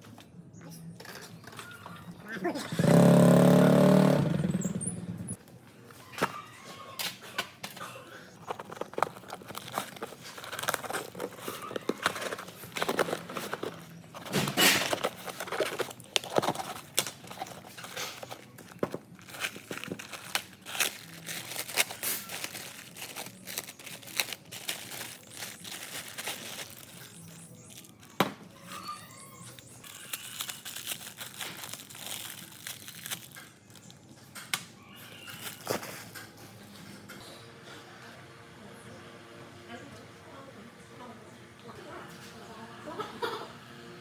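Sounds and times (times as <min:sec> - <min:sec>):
crinkling and rustling: 0:05.4 - 0:37.2.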